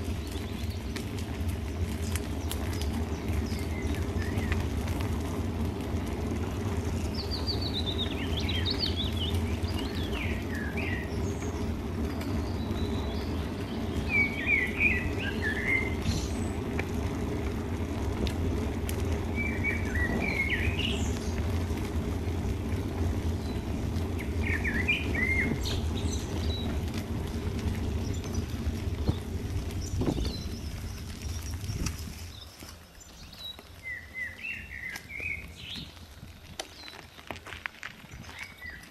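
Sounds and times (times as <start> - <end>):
low rumble: 0.0 - 32.5
songbird twittering: 7.0 - 16.7, 19.3 - 21.5, 23.3 - 36.0.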